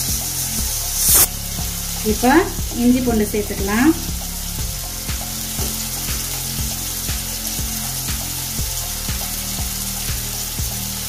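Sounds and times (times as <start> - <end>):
background music with beat: 0.0 - 11.0
food sizzling in a pot: 0.0 - 11.0.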